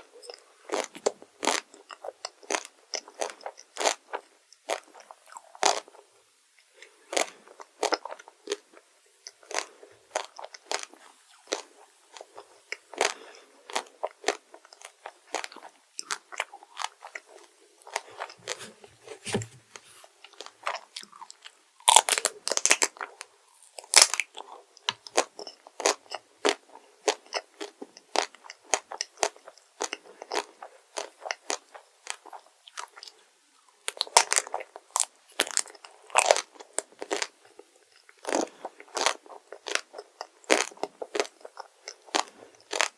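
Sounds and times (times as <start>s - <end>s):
chewing crunchy sweets: 0.1s - 42.9s.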